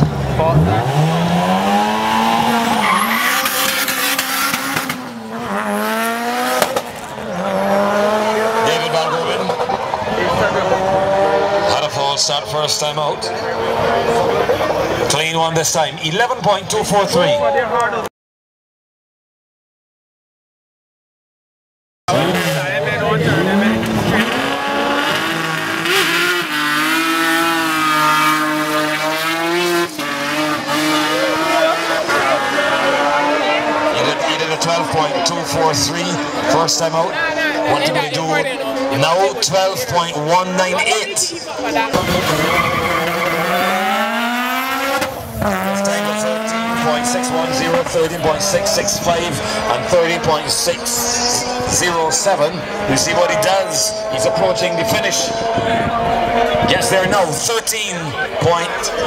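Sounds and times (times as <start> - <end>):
racing car engine at high revs: 0.0 - 17.1, 22.1 - 59.0
tyre squeal: 2.7 - 3.8, 42.0 - 43.7
sharp engine pops: 6.6 - 7.0.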